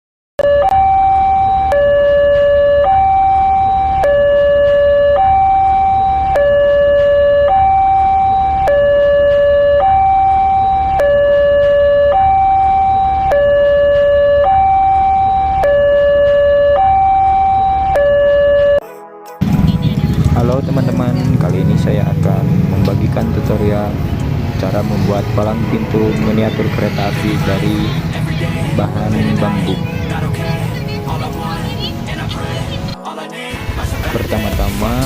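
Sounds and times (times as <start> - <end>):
alarm clicks: 0.4 - 18.8
two-tone level-crossing alarm: 0.4 - 18.8.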